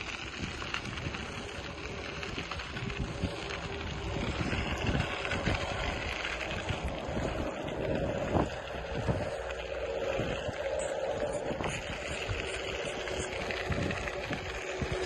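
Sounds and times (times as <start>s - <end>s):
faint steady hum: 0.0s - 15.0s
wind buffeting microphone: 0.0s - 15.0s.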